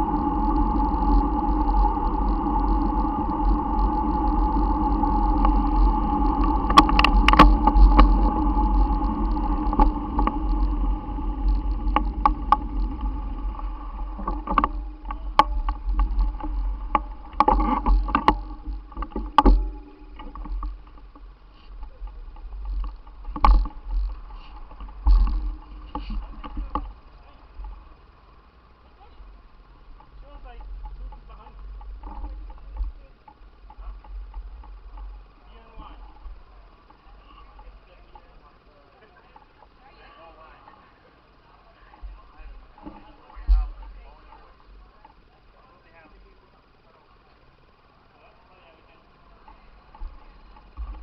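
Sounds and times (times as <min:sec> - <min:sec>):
wind rushing over microphone: 0:00.0 - 0:27.0
bicycle road rumble: 0:00.0 - 0:51.0
sharp knocks and rattles: 0:06.1 - 0:27.0.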